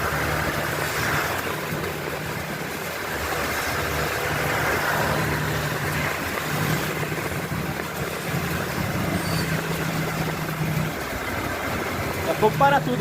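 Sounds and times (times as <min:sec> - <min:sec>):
heavy rain hiss: 0:00.0 - 0:13.0
vehicle engine humming: 0:00.0 - 0:13.0.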